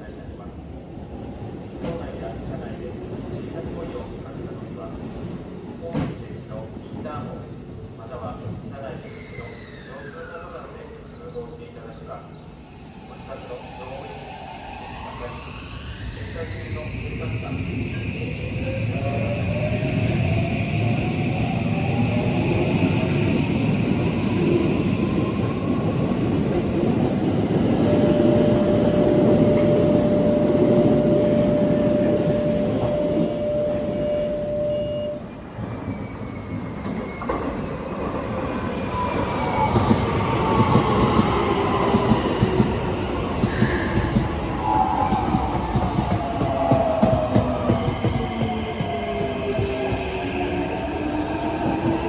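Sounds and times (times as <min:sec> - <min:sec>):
train wheels rumbling on rails: 0:15.0 - 0:52.0
steady high tone: 0:27.5 - 0:35.3.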